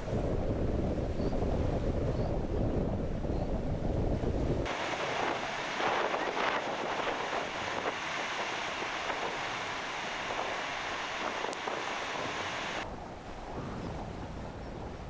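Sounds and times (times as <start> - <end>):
wind buffeting microphone: 0.0 - 15.0
rushing water and spray: 4.6 - 12.9.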